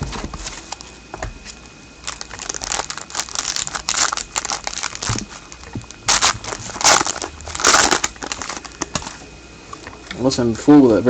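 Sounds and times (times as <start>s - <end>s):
plastic wrapper crinkling: 2.0s - 9.2s.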